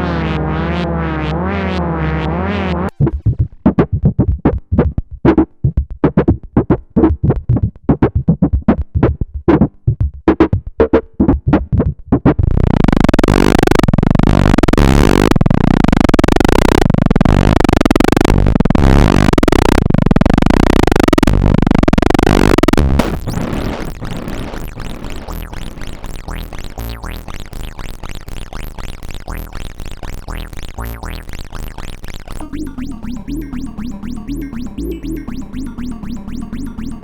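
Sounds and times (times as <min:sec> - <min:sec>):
sustained dense synthesizer tone: 0:00.0 - 0:03.8, 0:12.4 - 0:37.0
synthesizer staccato notes: 0:00.0 - 0:04.9, 0:12.7 - 0:37.0.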